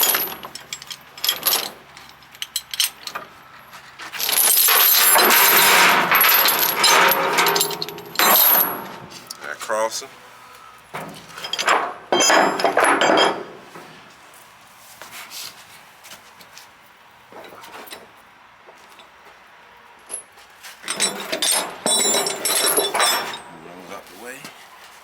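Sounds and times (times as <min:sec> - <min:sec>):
steel chains clanking: 0:00.0 - 0:10.0, 0:10.9 - 0:13.6, 0:20.0 - 0:24.0.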